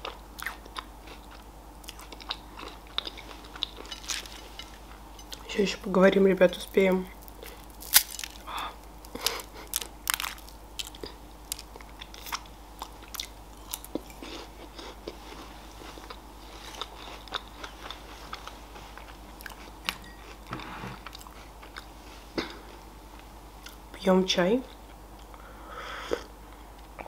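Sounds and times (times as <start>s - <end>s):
chewing crisp wafer crunches: 0.0s - 5.5s, 7.2s - 19.8s
candy cracking apart: 7.2s - 12.5s.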